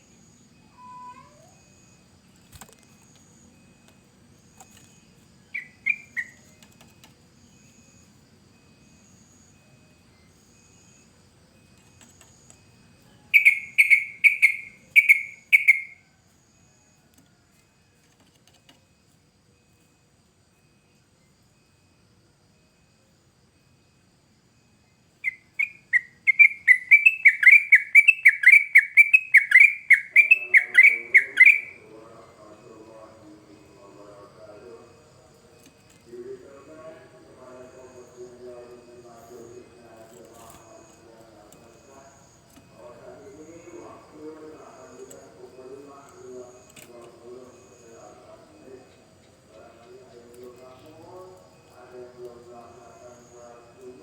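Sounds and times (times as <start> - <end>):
faint high bird calls: 0.0 - 3.9, 4.5 - 8.0, 11.8 - 17.2, 25.2 - 31.9
bird chirping: 0.0 - 8.1, 11.8 - 16.0, 24.8 - 34.8
bulbul singing clear notes: 4.9 - 6.6, 13.3 - 16.0, 25.2 - 31.8.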